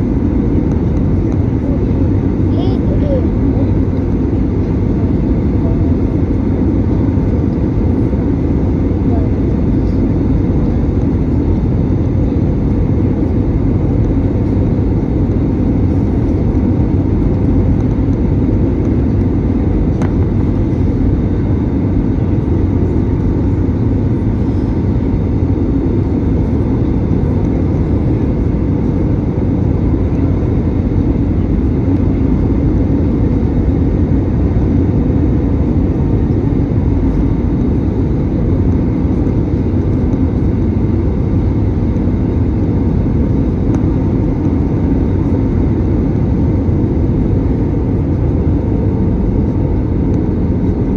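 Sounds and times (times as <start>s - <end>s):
airliner cabin airflow and engines: 0.0s - 50.9s.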